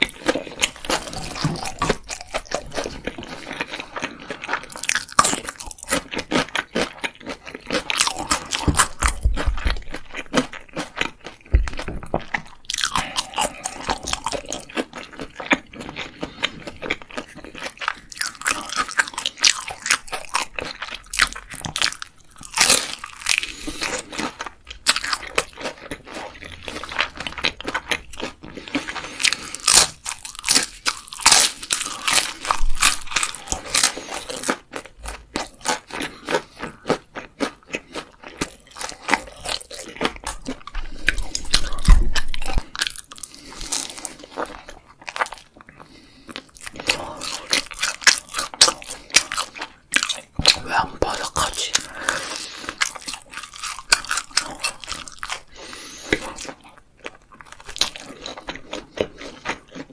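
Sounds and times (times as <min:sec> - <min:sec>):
crunching and chewing crisp food: 0:00.0 - 0:59.9.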